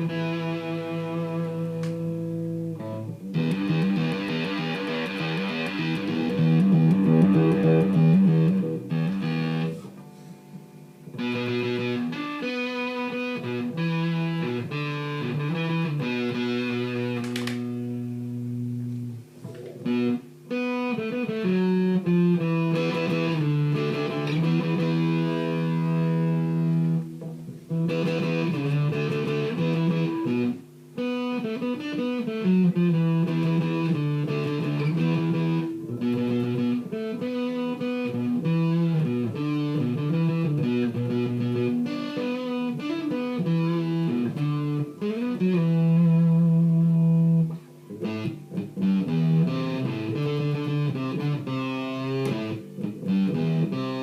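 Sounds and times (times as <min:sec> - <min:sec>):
distorted electric guitar riffs: 0:00.0 - 0:54.0.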